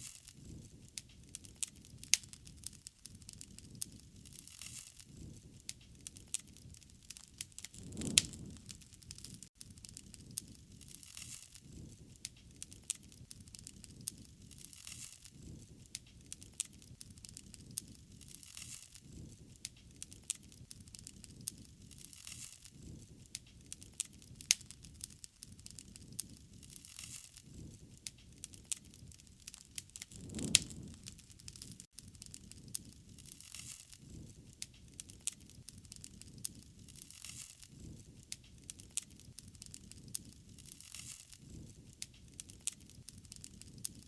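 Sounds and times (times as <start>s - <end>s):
wood fire crackling and popping: 0.0s - 44.0s
flames rushing: 7.2s - 9.5s, 29.5s - 31.9s.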